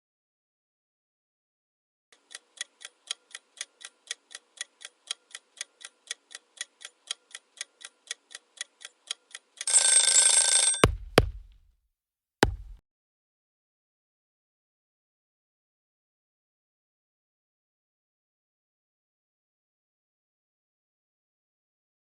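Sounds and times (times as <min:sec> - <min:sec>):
sharp knocks: 0:10.8 - 0:11.5, 0:12.4 - 0:12.8.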